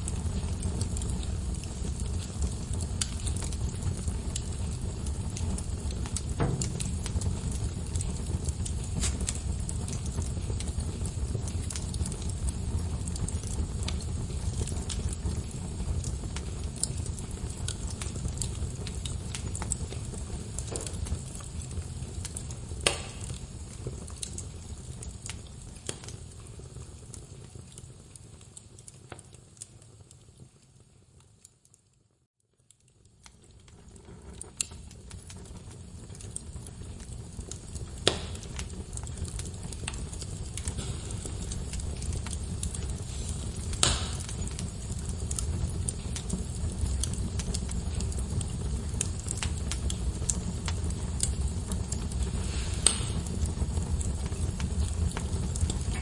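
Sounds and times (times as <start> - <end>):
fire crackling and popping: 0.0 - 56.0
flames rumbling: 0.0 - 56.0.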